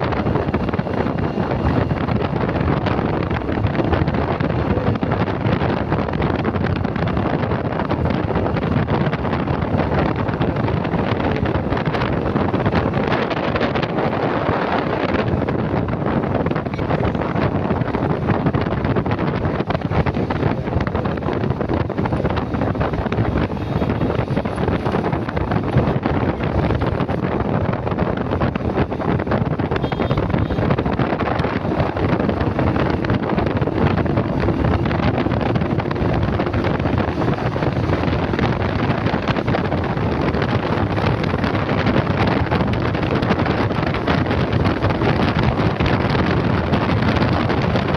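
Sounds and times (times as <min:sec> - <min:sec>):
motorcycle and road noise: 0:00.0 - 0:47.9
wind noise on microphone: 0:00.0 - 0:47.9.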